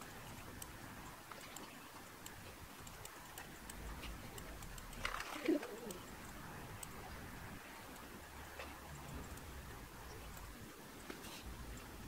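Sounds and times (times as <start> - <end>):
faint scattered clicks: 0.0 - 12.0
bird cooing: 5.0 - 6.1.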